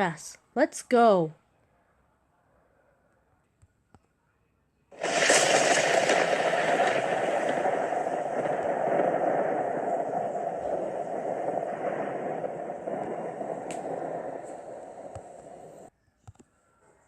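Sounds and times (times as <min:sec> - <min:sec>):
heavy rain: 0:05.0 - 0:15.9.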